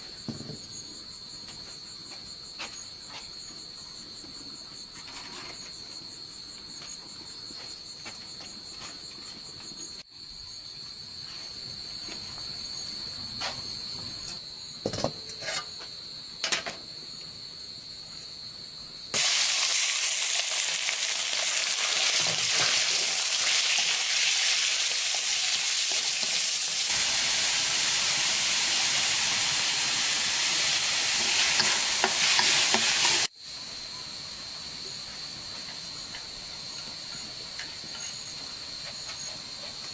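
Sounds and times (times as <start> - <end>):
crickets chirring: 0.0 - 39.9
food sizzling in hot oil: 19.1 - 33.3.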